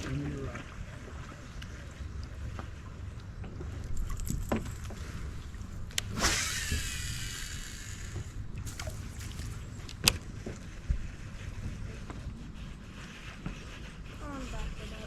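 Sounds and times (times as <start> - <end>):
wind and water rumble: 0.0 - 15.0
fishing reel spool whirring: 3.9 - 8.6.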